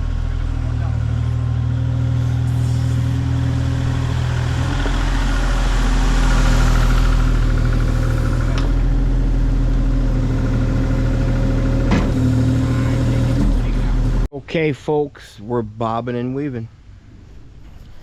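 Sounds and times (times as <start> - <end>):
excavator diesel engine running: 0.0 - 14.3.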